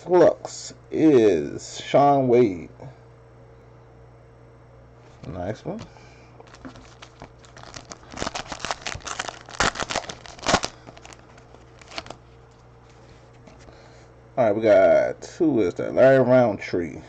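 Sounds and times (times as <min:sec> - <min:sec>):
plastic packaging crinkling: 0:06.4 - 0:13.0.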